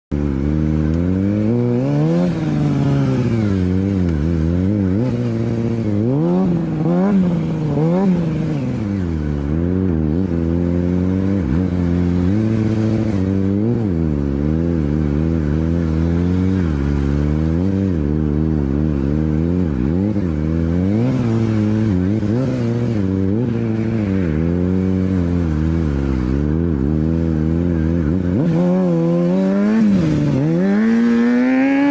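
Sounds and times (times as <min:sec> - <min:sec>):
motorcycle engine revving: 0:00.1 - 0:31.9.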